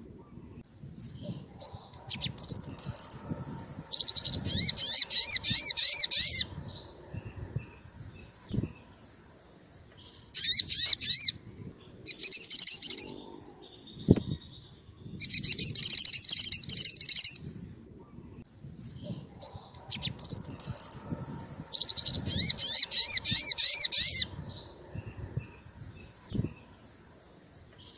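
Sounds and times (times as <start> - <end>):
high-pitched bird trilling: 0.9 - 3.3, 3.9 - 7.7, 10.4 - 11.4, 12.0 - 13.2, 13.8 - 17.5, 18.8 - 21.0, 21.7 - 24.6.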